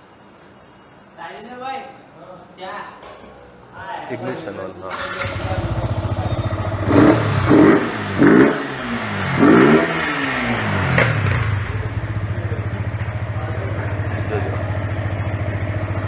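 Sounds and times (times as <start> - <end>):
motorcycle engine idling and revving: 4.9 - 16.0.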